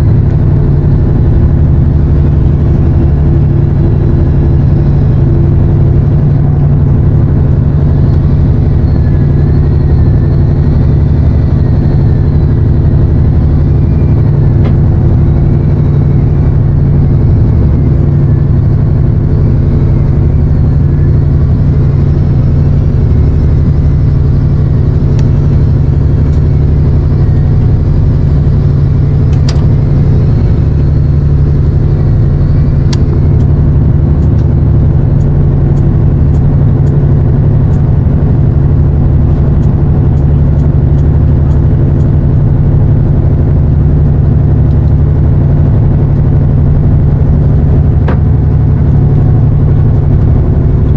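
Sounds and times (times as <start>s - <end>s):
boat engine running: 0.0s - 50.9s.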